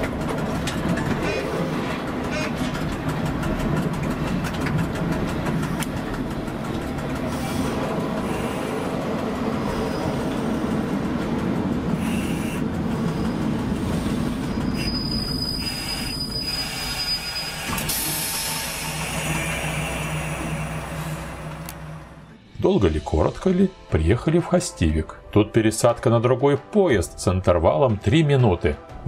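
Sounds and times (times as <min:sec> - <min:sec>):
train rumbling on track: 0:00.0 - 0:25.6
high wheel squeal: 0:12.0 - 0:21.4.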